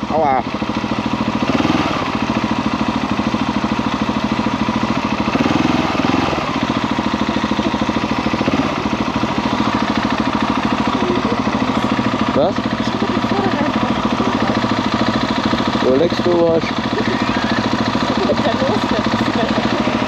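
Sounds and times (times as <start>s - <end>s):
single-cylinder engine thumping: 0.0s - 20.0s.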